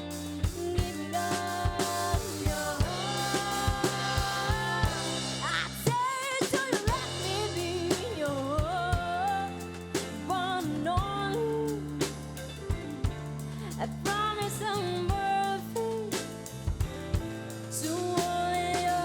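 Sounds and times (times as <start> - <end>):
drum kit strokes: 0.0 - 19.0.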